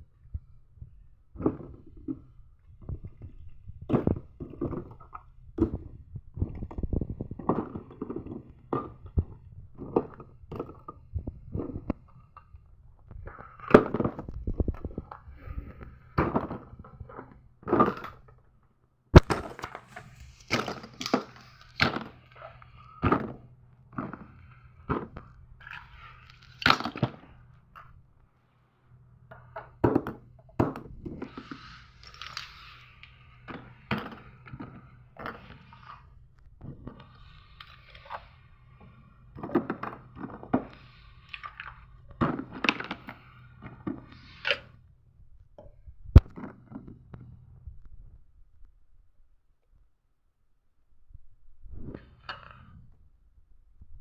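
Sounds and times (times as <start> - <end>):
rustling and scraping: 19.2 - 28.0.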